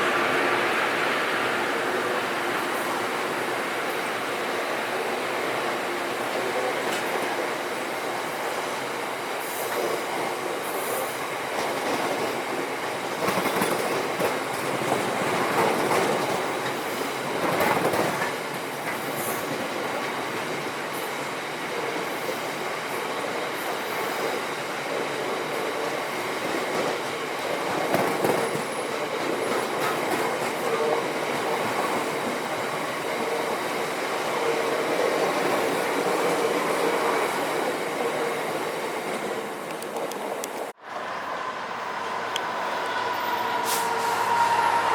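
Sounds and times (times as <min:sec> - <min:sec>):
train clanks: 0:00.0 - 0:44.9
train wheels clattering on rails: 0:00.0 - 0:44.9
faint wheel squeal: 0:40.9 - 0:44.9.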